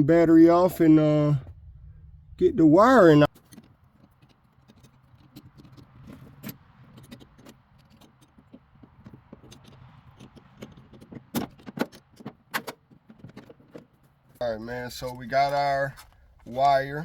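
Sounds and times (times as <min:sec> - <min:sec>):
metal tools clinking and rattling: 0:03.3 - 0:14.0.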